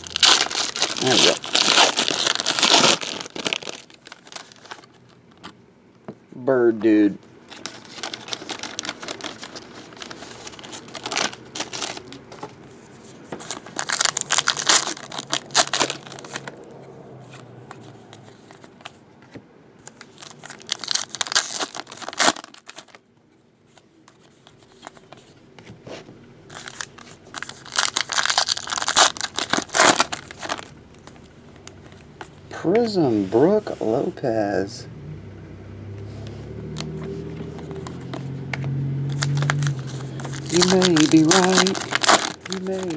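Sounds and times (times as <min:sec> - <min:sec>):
wrappers ripping and crinkling: 0:00.0 - 0:05.1, 0:07.5 - 0:12.4, 0:13.4 - 0:16.6, 0:19.9 - 0:23.0, 0:26.5 - 0:31.2, 0:39.1 - 0:42.9.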